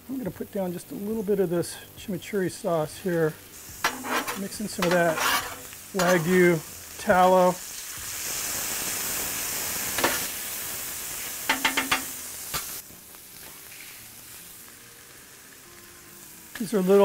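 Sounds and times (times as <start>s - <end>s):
sauce sizzling on a griddle: 0.0s - 17.0s
metal spatula scraping griddle: 3.6s - 6.6s.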